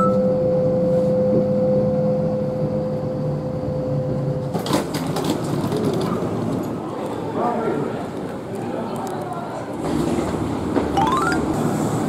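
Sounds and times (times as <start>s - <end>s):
train electrical hum: 0.1s - 12.0s
train clicks and rattles: 4.4s - 6.8s.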